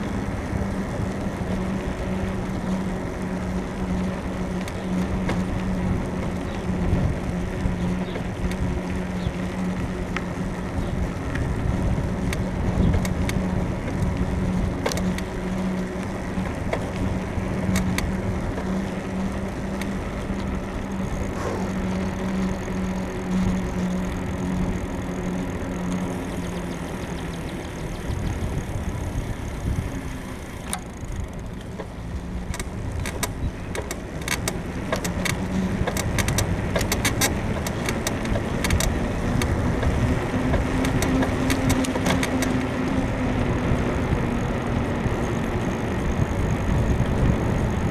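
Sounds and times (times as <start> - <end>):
bicycle frame creaks and clicks: 0.0 - 47.9
steady low hum: 0.0 - 47.9
wind and road rumble: 0.0 - 47.9.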